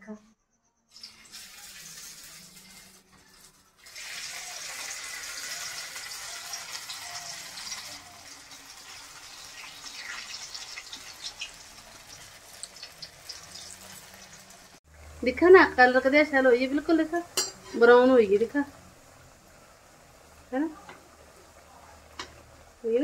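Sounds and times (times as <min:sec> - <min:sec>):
oil crackling and popping: 0:00.9 - 0:14.8
food sizzling in hot oil: 0:00.9 - 0:23.0.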